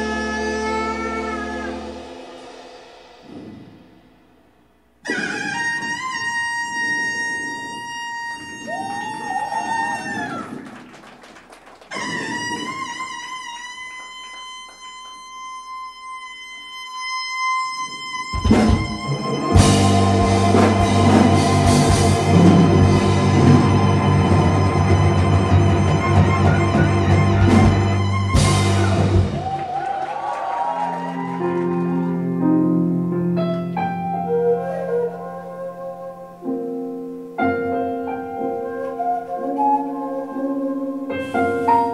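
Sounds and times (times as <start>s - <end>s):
live band playing: 0.0s - 4.0s, 5.0s - 41.9s
drums and bass: 0.0s - 4.1s, 18.2s - 31.0s
keyboard playing sustained chords: 19.0s - 29.3s.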